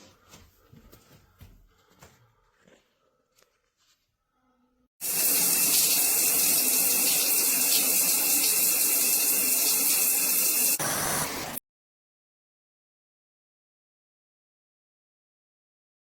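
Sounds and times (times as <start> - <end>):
water spraying from shower head: 5.0 - 11.6.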